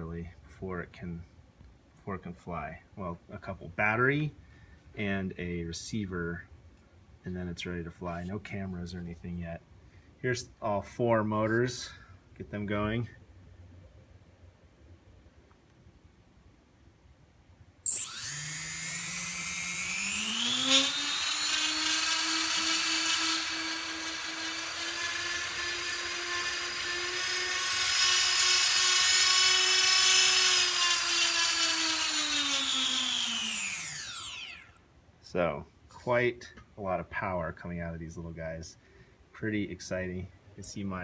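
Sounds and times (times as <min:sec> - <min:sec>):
drone motors whining: 0:17.9 - 0:25.1, 0:27.1 - 0:34.8.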